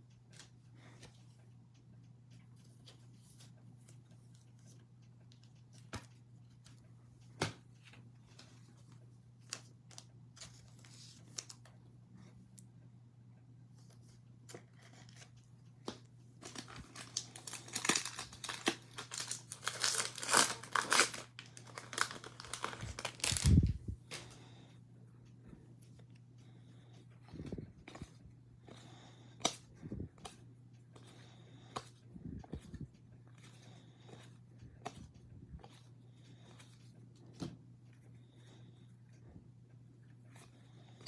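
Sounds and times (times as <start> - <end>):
foil wrapper crinkling and tearing: 16.4 - 24.2.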